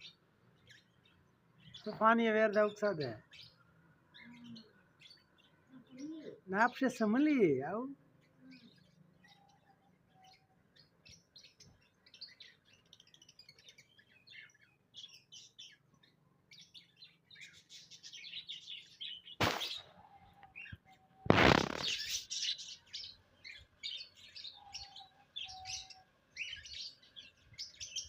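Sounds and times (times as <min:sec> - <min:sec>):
cage birds chirping: 0:00.0 - 0:28.0.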